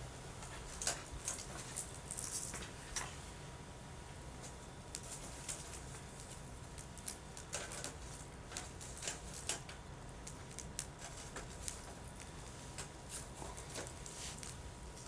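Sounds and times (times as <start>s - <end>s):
fire snapping and popping: 4.9s - 15.0s.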